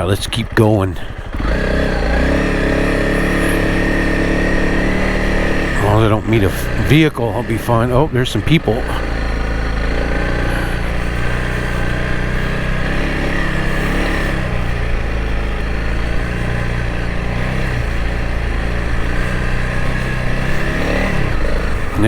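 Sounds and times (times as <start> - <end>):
low wind rumble: 0.0 - 22.0
motorcycle engine running: 0.0 - 22.0.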